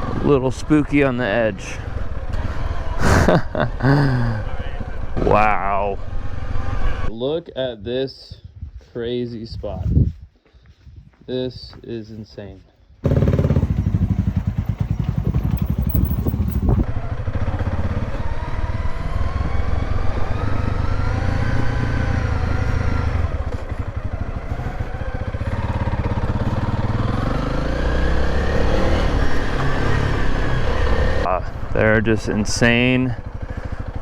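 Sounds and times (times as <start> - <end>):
motorcycle engine running: 13.0 - 34.0.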